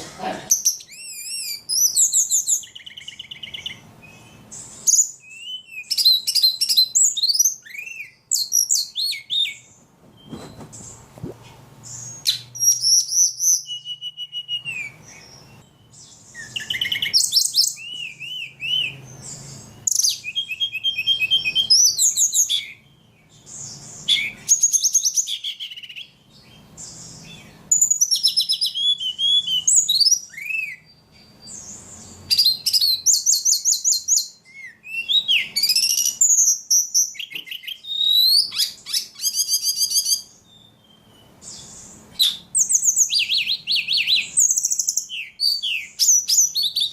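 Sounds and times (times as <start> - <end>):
songbird singing trills and whistles: 0.5 - 46.9.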